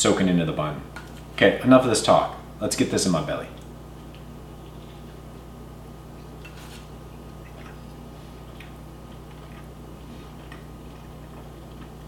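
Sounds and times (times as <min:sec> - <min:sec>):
low electrical hum: 0:00.0 - 0:12.0
man chewing with mouth clicks: 0:03.6 - 0:05.4, 0:06.1 - 0:12.0.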